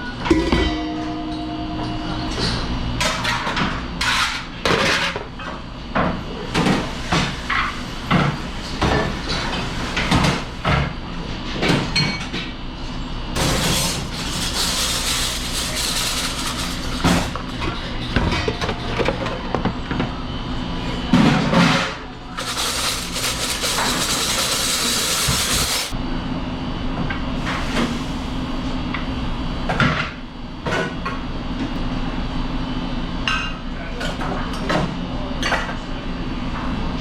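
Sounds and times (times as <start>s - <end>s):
machine hum: 0.1s - 3.6s.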